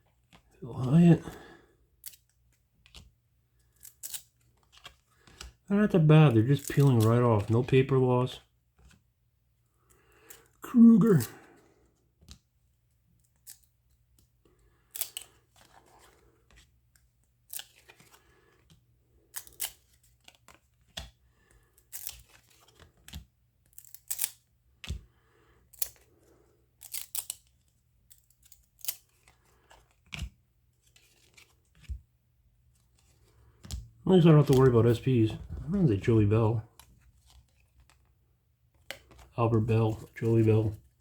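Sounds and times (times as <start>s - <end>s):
cards snapping and scraping: 2.0s - 5.6s, 6.4s - 7.7s, 13.2s - 32.0s, 33.0s - 34.7s, 38.7s - 40.8s.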